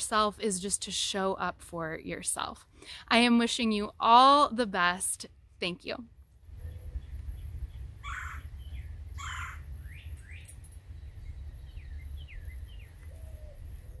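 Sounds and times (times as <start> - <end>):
steady low rumble: 5.3 - 14.0
harsh bird calls: 6.6 - 10.5.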